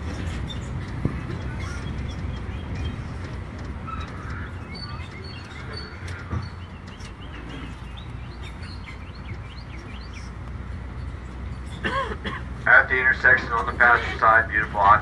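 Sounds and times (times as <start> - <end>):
low rumble of moving tram: 0.0 - 15.0
small birds chirping: 0.1 - 11.8.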